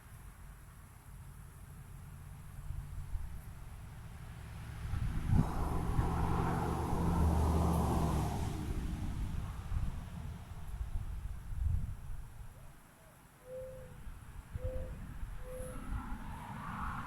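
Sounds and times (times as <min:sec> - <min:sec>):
vehicle passing by: 0:03.7 - 0:11.0, 0:15.5 - 0:17.0.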